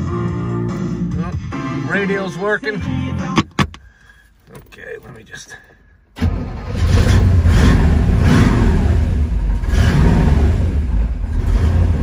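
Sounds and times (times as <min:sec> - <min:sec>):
car engine revving: 0:06.2 - 0:12.0.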